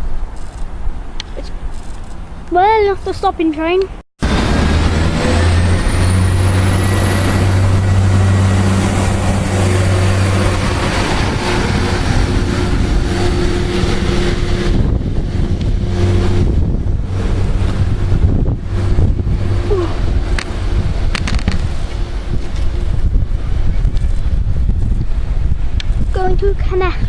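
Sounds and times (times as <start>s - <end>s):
diesel train engine droning: 4.2s - 25.8s.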